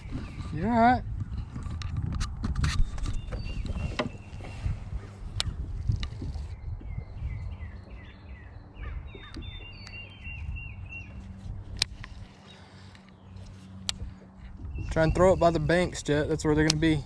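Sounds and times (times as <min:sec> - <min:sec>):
low outdoor rumble: 0:00.0 - 0:17.0
songbird calling falling notes: 0:02.8 - 0:04.7, 0:05.4 - 0:16.0.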